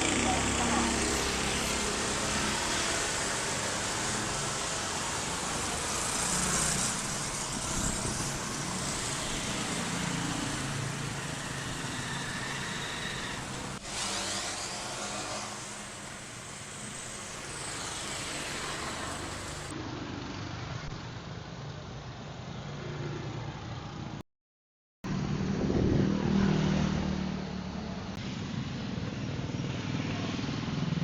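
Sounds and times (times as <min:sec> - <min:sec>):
road traffic noise: 0:00.0 - 0:24.2, 0:25.0 - 0:31.0.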